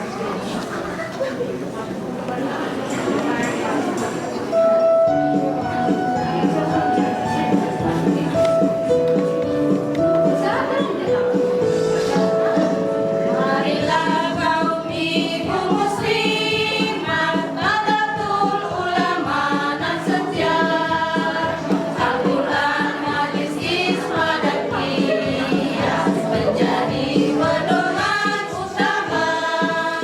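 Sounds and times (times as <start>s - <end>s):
women's choir singing: 12.0s - 30.0s.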